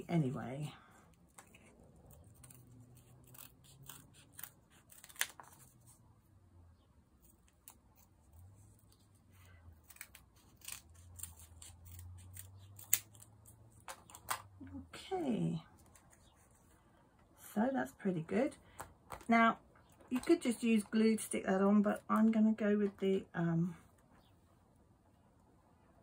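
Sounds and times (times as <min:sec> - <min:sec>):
scissors snipping paper: 0:01.3 - 0:05.7, 0:07.2 - 0:14.5.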